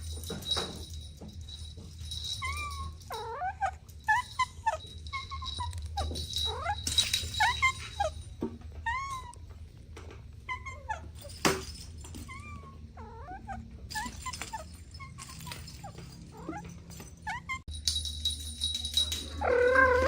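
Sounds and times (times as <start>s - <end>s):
kittens mewing: 12.2s - 17.7s.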